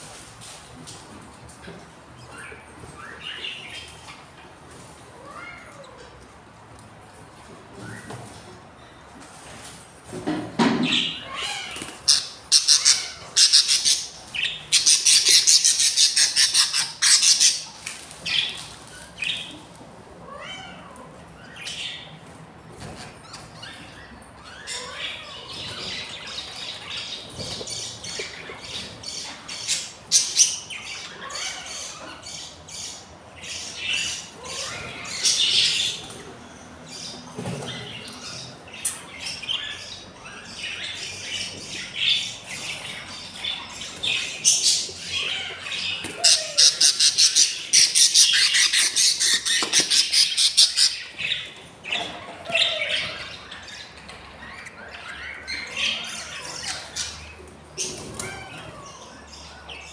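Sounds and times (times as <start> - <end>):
budgerigars squawking and chattering: 10.8 - 19.6, 22.8 - 59.9.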